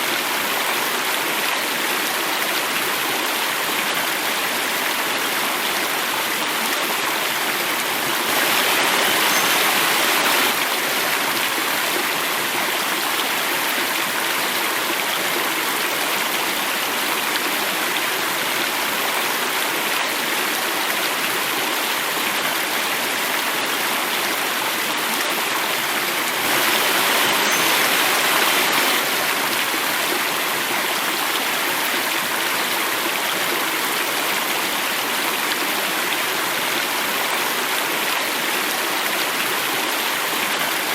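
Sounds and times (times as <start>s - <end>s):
stream water rushing over cascade: 0.0s - 40.9s.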